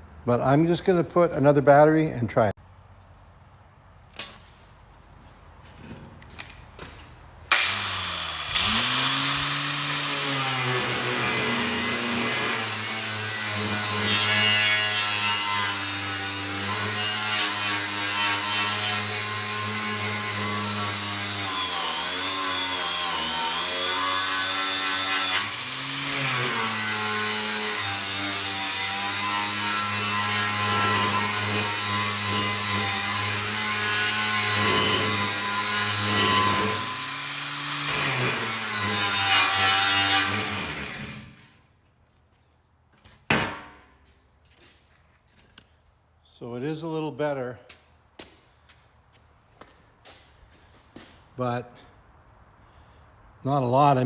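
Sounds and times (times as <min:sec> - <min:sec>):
angle grinder scraping metal: 0:07.5 - 0:41.6.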